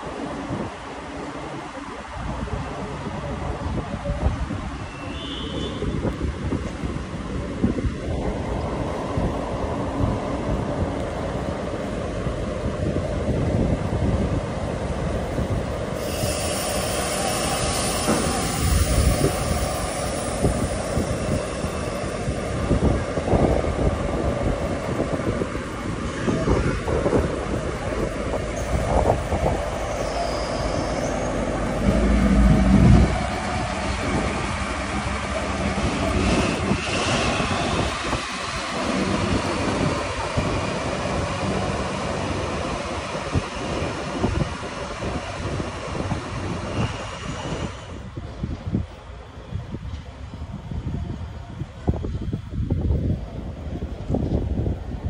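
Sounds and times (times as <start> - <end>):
train rumbling on rails: 0.0 - 55.0
high wheel squeal: 16.0 - 22.6, 28.6 - 33.0.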